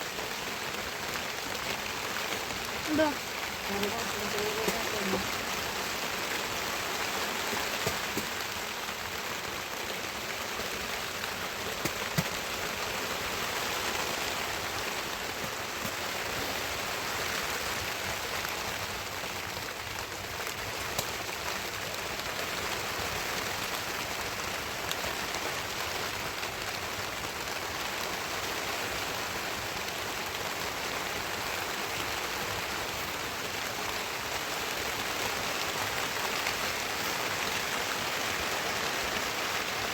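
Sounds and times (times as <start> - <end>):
heavy rain falling: 0.0 - 39.9
sharp raindrop hits: 2.4 - 19.1.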